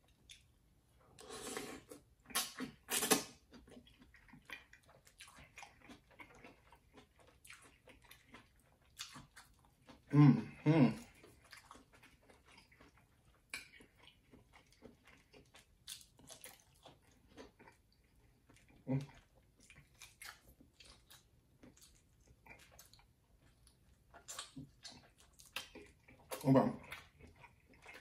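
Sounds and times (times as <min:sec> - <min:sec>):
wet chewing and mouth clicks: 0:00.0 - 0:00.6, 0:01.3 - 0:10.2, 0:10.9 - 0:28.0.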